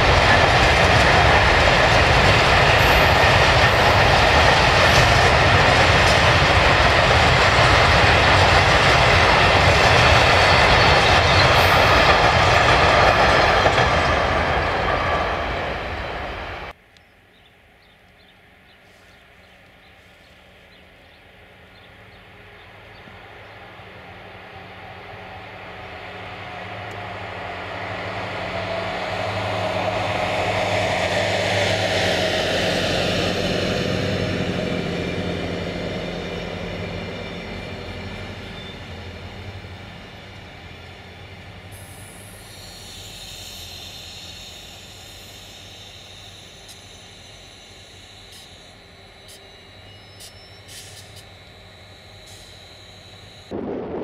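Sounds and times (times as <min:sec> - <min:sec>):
locomotive whine: 0:00.0 - 0:54.0
train passing: 0:00.0 - 0:54.0
high squeal: 0:02.0 - 0:16.7, 0:27.8 - 0:53.6.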